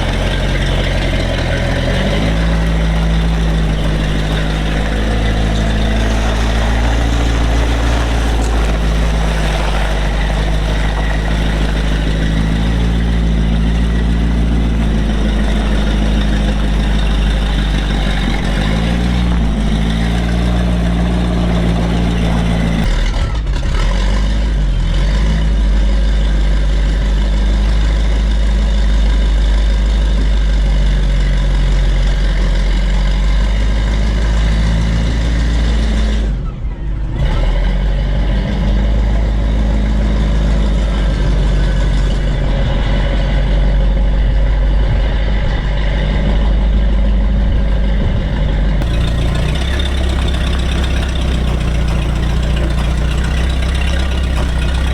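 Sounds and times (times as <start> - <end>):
armoured vehicle engine running: 0.0 - 23.0, 48.8 - 54.9.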